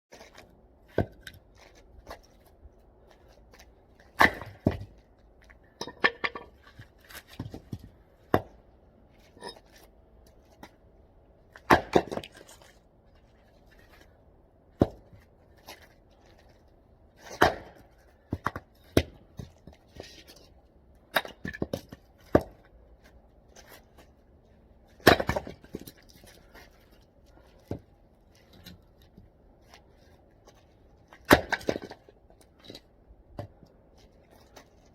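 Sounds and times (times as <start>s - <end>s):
hatchet chopping wood: 4.0s - 5.0s, 8.3s - 8.6s, 11.6s - 12.5s, 14.8s - 15.2s, 17.2s - 19.6s, 21.1s - 22.6s, 25.0s - 25.9s, 31.2s - 32.0s.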